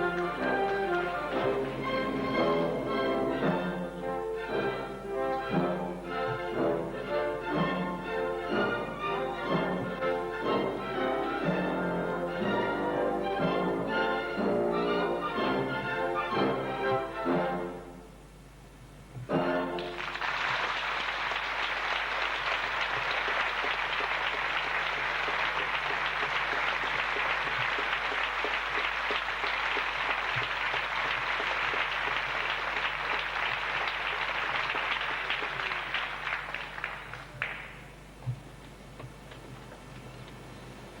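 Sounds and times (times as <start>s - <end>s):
audience applauding: 19.8s - 37.9s.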